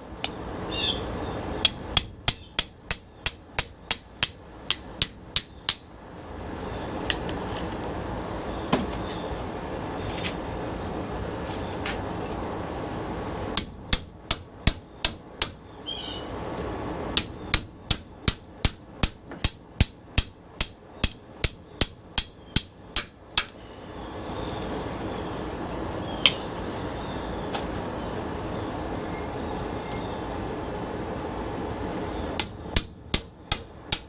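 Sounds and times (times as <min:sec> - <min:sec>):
hammer striking metal: 0:01.6 - 0:05.9, 0:13.6 - 0:15.6, 0:17.2 - 0:23.6, 0:32.4 - 0:34.0.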